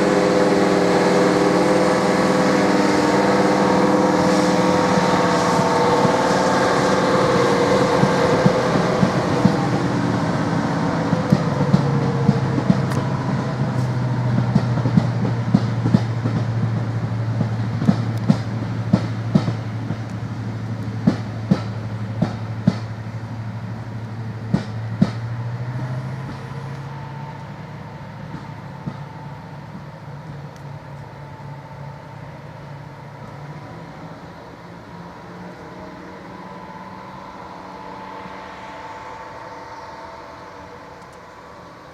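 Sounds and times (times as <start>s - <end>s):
diesel locomotive engine: 0.0s - 41.9s
wheels clicking over rail joints: 7.9s - 10.2s, 10.8s - 23.2s, 24.0s - 27.6s.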